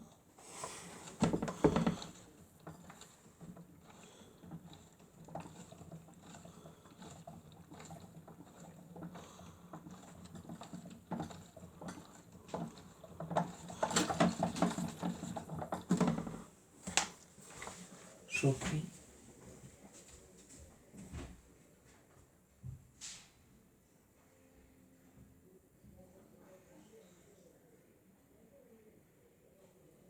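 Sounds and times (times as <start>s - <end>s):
toy washing machine motor hum: 0.0s - 18.8s.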